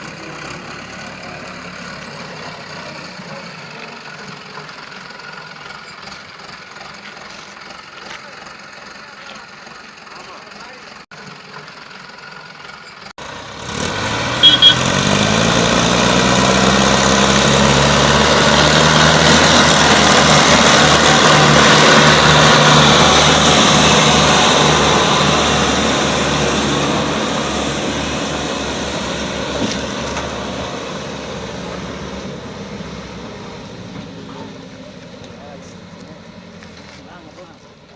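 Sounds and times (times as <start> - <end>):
diesel tractor engine revving: 0.0 - 37.9
short high beeps: 14.4 - 14.8.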